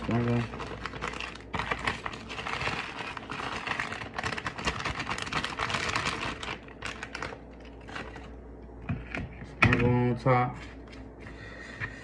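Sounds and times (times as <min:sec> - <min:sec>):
crushed chips crackling: 0:00.0 - 0:08.3.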